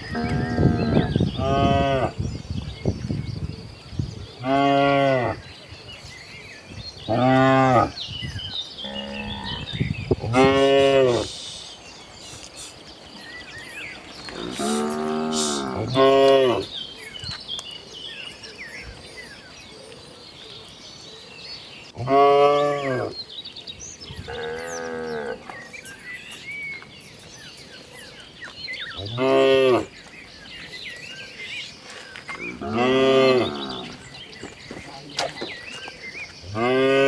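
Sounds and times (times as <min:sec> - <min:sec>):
cattle mooing: 0:10.3 - 0:11.3, 0:14.3 - 0:16.6.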